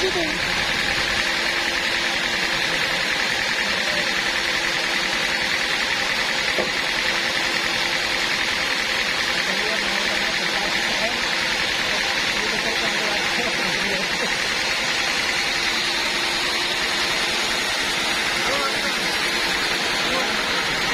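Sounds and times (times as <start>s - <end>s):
band saw machine noise: 0.0s - 20.9s.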